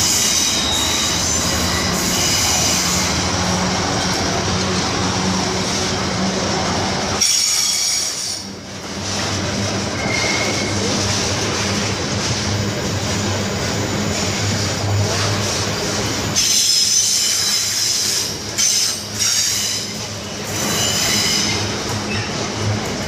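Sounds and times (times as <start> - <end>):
metallic wheel squeal: 0.0 - 3.2, 9.9 - 10.8, 16.4 - 22.3
train wheels rumbling on rail: 0.0 - 23.0.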